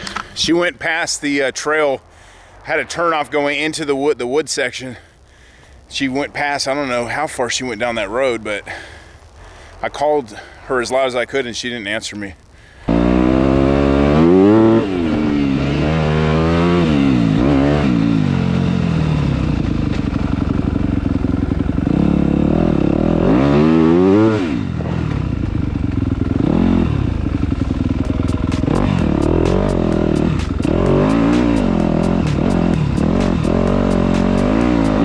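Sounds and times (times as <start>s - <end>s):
dirt bike engine revving: 12.9s - 35.0s.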